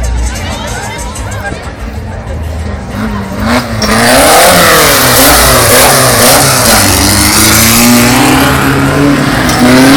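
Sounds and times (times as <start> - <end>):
race car engines revving: 0.0 - 9.9.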